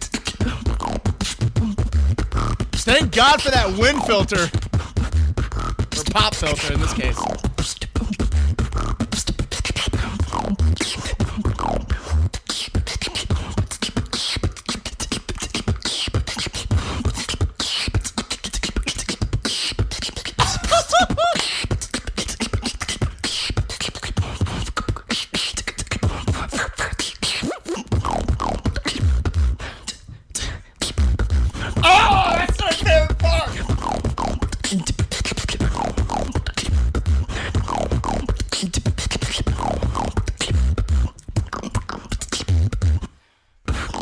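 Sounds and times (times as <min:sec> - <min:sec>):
person beatboxing: 0:00.0 - 0:43.1, 0:43.7 - 0:44.0
wavering vocal effect: 0:20.4 - 0:21.4, 0:31.8 - 0:33.6.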